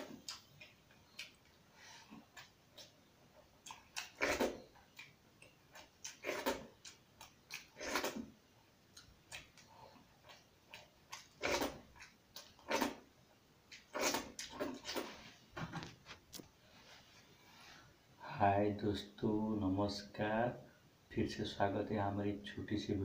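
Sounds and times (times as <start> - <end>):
lip smacks: 0.0 - 3.0, 3.6 - 8.3, 8.9 - 13.0
small mouth clicks: 0.0 - 3.0, 3.6 - 8.2, 8.9 - 13.0
man chewing food: 0.0 - 16.6.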